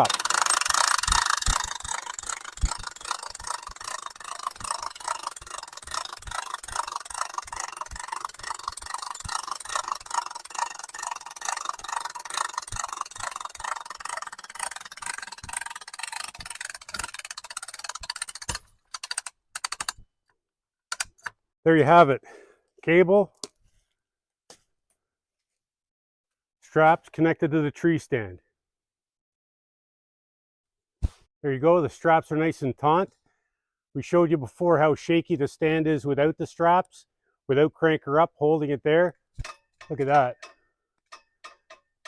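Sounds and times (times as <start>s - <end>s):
winch ratchet clicking: 0.0s - 20.0s, 20.9s - 21.4s, 39.4s - 42.0s.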